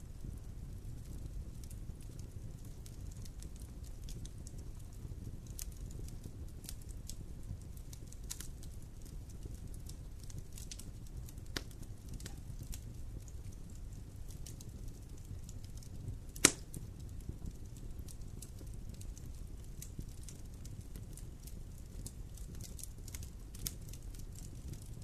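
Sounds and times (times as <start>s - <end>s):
campfire crackling: 0.0s - 25.0s
loud sharp fire pop: 16.4s - 16.8s.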